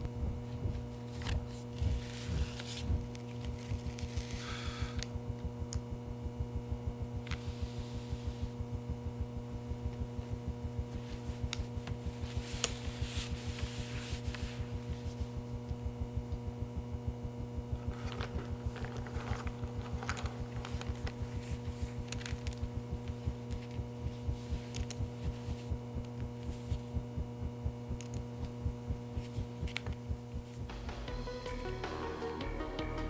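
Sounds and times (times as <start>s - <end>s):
droning hum: 0.0s - 33.0s
fast low throb: 5.2s - 13.4s, 14.6s - 22.0s, 22.6s - 31.7s
music: 30.7s - 33.0s.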